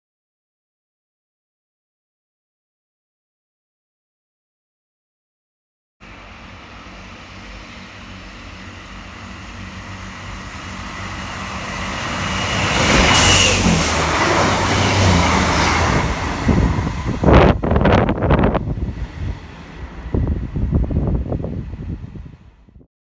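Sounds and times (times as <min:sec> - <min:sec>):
train passing: 0:06.0 - 0:22.8
wind buffeting microphone: 0:09.6 - 0:22.9.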